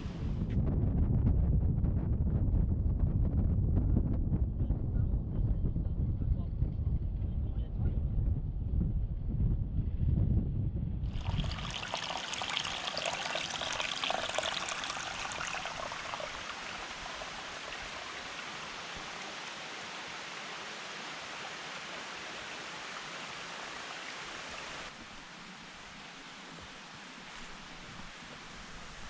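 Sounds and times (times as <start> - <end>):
water rushing and splashing: 11.1 - 29.0.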